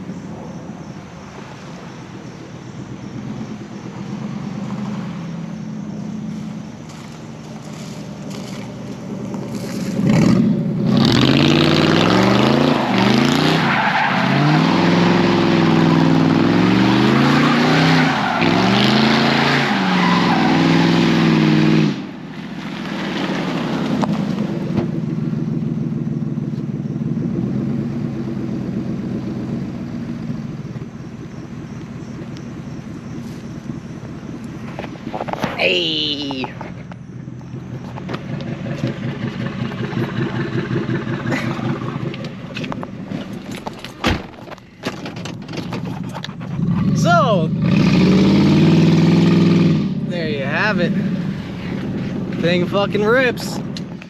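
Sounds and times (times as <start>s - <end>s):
car engine revving: 2.6s - 54.0s
tyres spinning on wet road: 6.1s - 24.6s, 37.9s - 44.0s.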